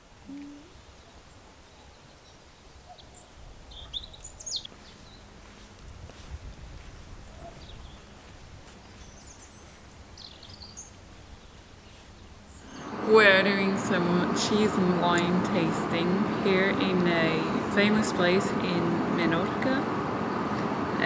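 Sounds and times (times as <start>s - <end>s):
small birds chirping: 0.2s - 13.0s
low wind rumble: 3.2s - 21.0s.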